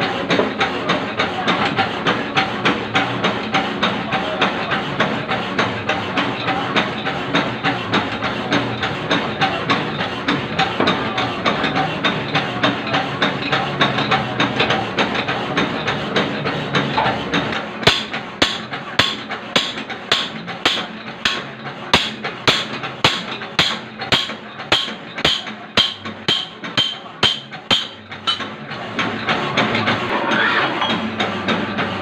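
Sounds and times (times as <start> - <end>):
steady machine hum: 0.0 - 30.2
metal-on-metal knocks: 17.8 - 28.6
ringing metal strikes: 22.0 - 28.5.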